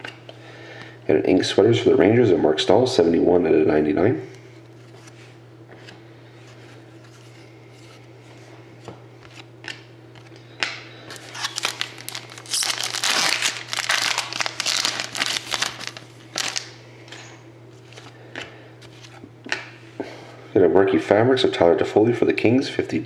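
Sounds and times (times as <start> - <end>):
low steady hum: 0.0 - 23.0
plastic packaging crinkling and tearing: 11.1 - 16.8.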